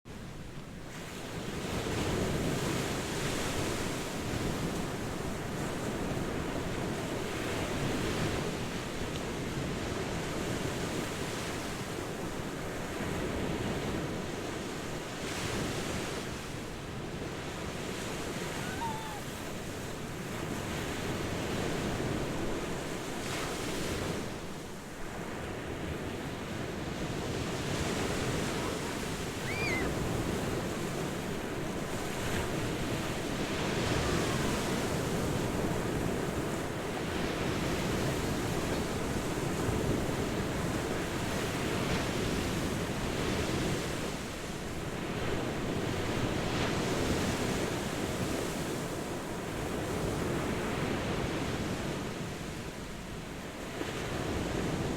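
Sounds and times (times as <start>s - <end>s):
ocean waves breaking: 15.1s - 42.5s.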